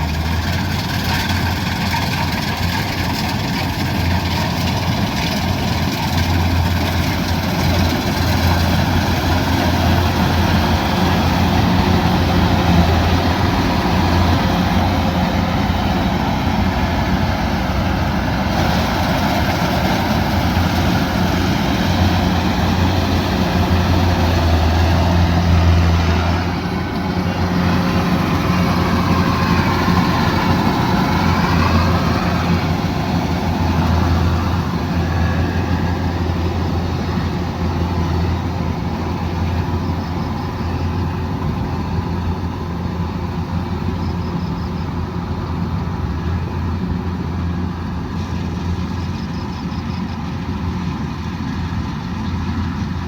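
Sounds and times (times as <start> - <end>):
combine harvester running: 0.0 - 53.0.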